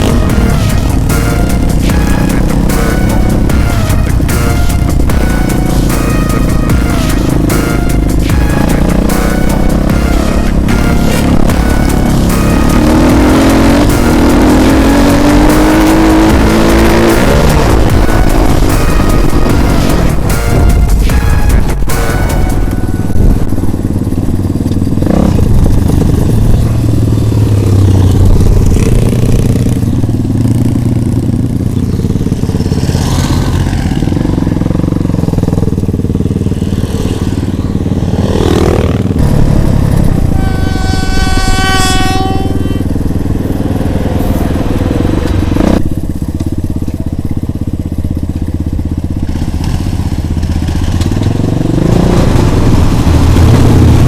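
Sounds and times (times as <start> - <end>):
horn tone: 0.0 - 29.8, 36.6 - 45.9
motorcycle engines running: 0.0 - 54.0.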